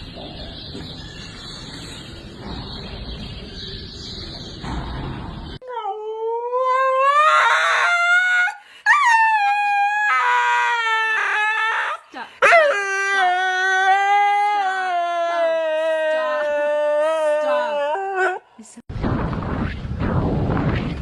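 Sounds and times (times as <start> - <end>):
dog howling: 5.6 - 18.4.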